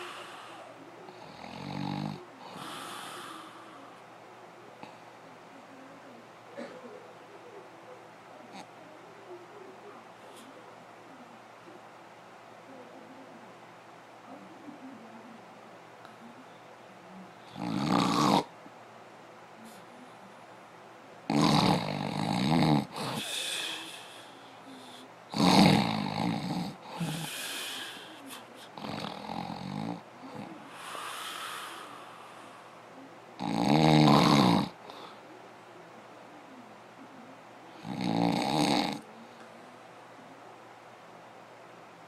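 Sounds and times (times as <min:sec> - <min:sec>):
quiet breaths: 0:00.0 - 0:42.0
loud rasping snores: 0:01.2 - 0:03.3, 0:17.5 - 0:18.5, 0:21.3 - 0:23.2, 0:25.3 - 0:27.8, 0:28.8 - 0:31.7, 0:33.4 - 0:34.8, 0:37.8 - 0:39.0.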